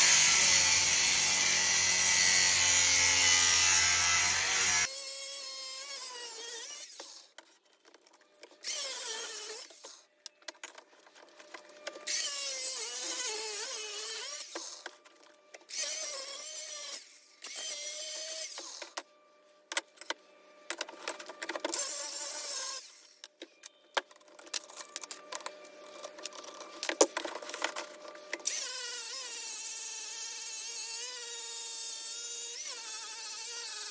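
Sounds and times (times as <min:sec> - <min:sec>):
handheld power tool whining: 0:00.0 - 0:07.5, 0:08.4 - 0:10.4, 0:11.5 - 0:19.1, 0:21.6 - 0:23.3, 0:27.7 - 0:33.9.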